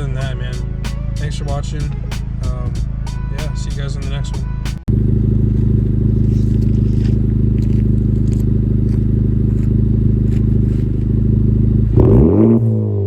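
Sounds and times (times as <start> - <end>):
car engine idling: 0.0 - 12.8
engine revving on throttle blip: 4.5 - 13.0.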